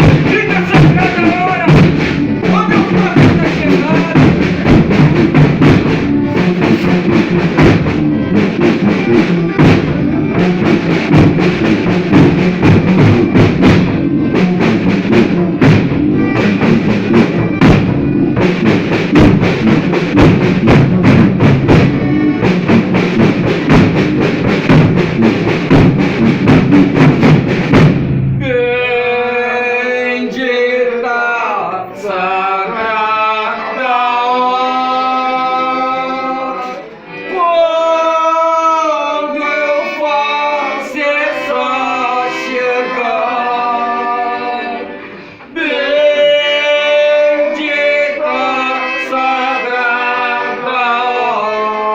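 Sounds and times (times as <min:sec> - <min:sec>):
steady drum beat: 0:00.0 - 0:29.4
band playing: 0:00.0 - 0:51.9.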